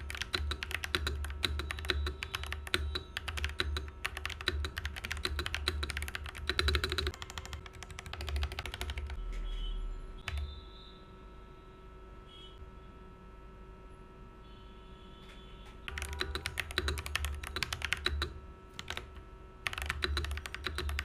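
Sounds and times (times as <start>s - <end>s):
mechanical keyboard typing: 0.0s - 9.2s, 10.2s - 10.5s, 15.9s - 21.0s.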